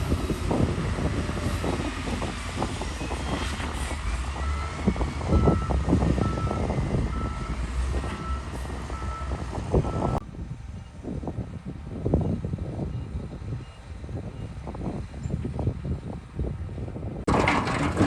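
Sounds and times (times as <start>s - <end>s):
soil and rocks clanking: 0.0s - 8.9s, 17.2s - 18.0s
diesel machinery rumble: 0.0s - 18.0s
reversing alarm beeps: 4.4s - 7.6s, 8.2s - 10.2s.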